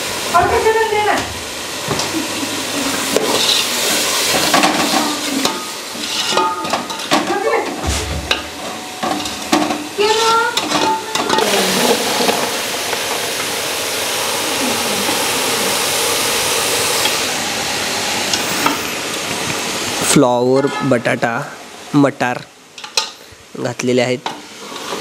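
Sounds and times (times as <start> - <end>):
food sizzling in a pot: 0.0 - 25.0
ladle scraping metal pot: 3.1 - 13.2.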